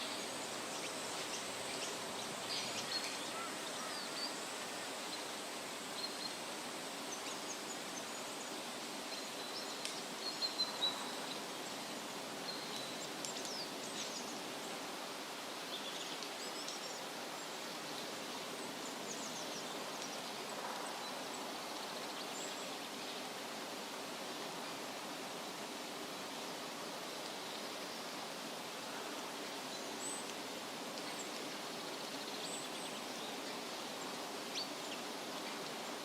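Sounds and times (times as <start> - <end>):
wind rustling leaves: 0.0 - 36.0.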